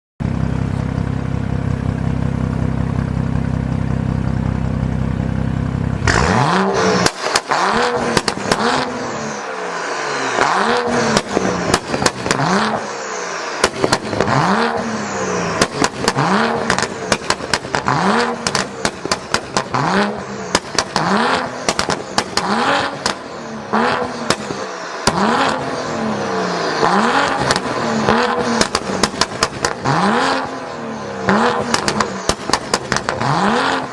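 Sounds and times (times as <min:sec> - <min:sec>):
car engine idling and revving: 0:00.2 - 0:33.9
exhaust pops and crackles: 0:07.0 - 0:08.9, 0:11.1 - 0:12.7, 0:13.6 - 0:14.4, 0:15.6 - 0:23.3, 0:24.0 - 0:25.6, 0:27.3 - 0:30.4, 0:31.3 - 0:33.5.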